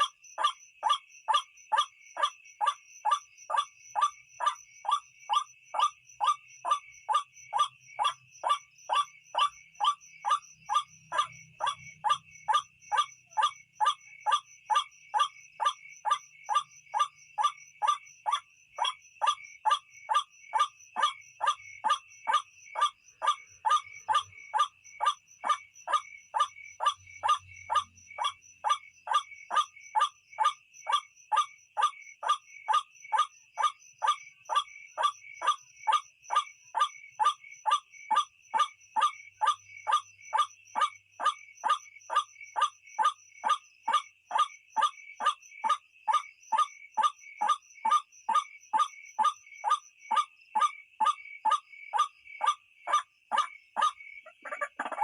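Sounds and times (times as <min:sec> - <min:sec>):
bird calls repeated: 0:53.8 - 0:55.0.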